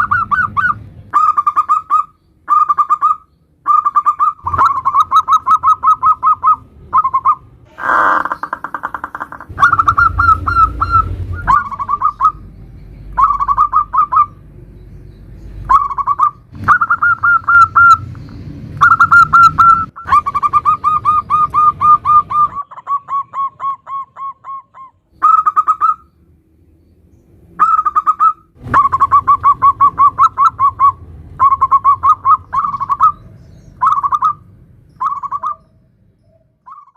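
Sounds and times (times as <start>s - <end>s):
dove cooing in pulsed phrases: 0.0s - 12.4s, 13.2s - 14.4s, 15.7s - 18.0s, 18.8s - 26.1s, 27.6s - 36.9s
low rumble: 9.4s - 15.8s.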